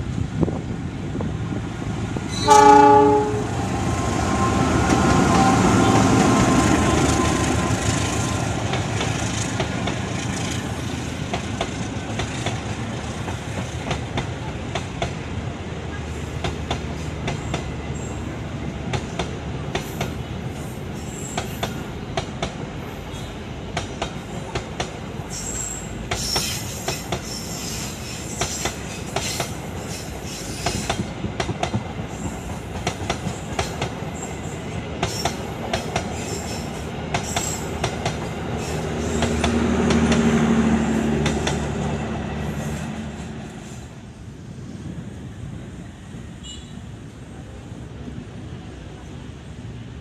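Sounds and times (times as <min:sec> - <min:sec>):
train rumble: 0:00.0 - 0:50.0
train wheels clicking over rail joints: 0:04.5 - 0:15.3, 0:16.3 - 0:17.8, 0:18.8 - 0:22.9, 0:23.6 - 0:44.0
wheel squeal: 0:25.3 - 0:31.0.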